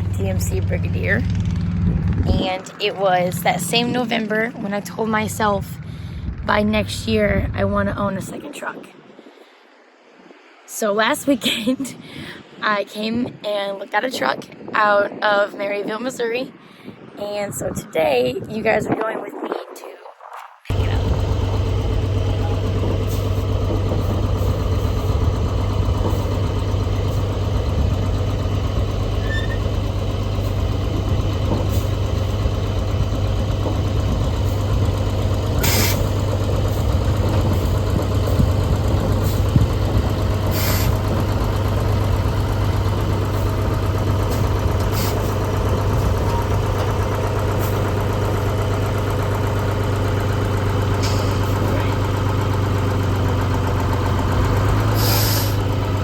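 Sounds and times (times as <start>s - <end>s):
truck diesel engine droning: 0.0s - 8.4s, 20.7s - 56.0s.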